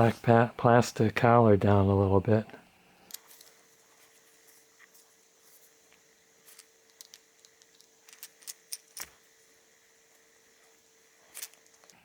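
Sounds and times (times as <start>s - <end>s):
faint steady hum: 0.0s - 12.0s
faucet parts clicking and rattling: 6.9s - 9.2s.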